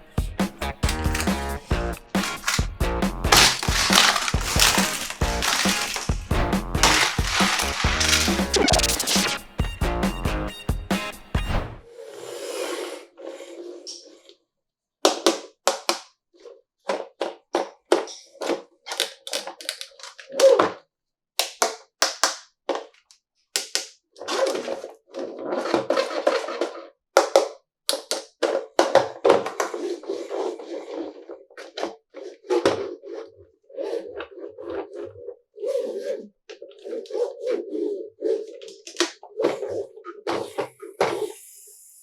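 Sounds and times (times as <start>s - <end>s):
packaging rustling: 0.8s - 2.7s, 3.3s - 9.3s.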